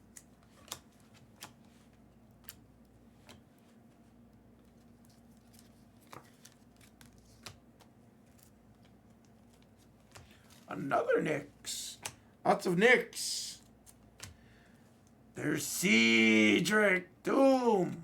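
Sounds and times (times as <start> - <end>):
trading cards clicking and snapping: 0.0 - 3.5, 6.0 - 10.7, 13.8 - 14.5.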